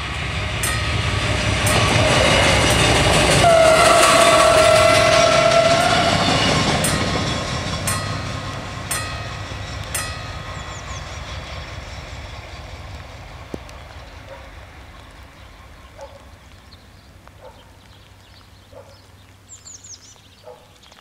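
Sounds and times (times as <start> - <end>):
diesel railcar rumble: 0.0 - 17.7
high bird chirps: 9.5 - 12.2
bird calls: 9.7 - 12.9, 13.5 - 21.0.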